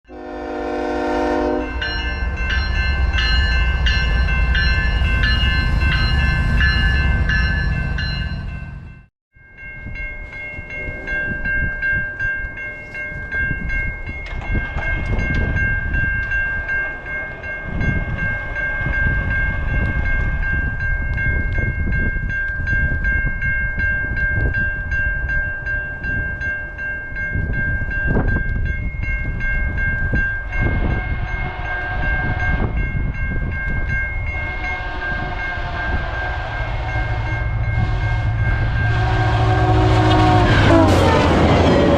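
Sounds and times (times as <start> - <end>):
locomotive horn chord: 0.1 - 2.0, 34.4 - 41.9
passing train rumble: 0.1 - 41.9.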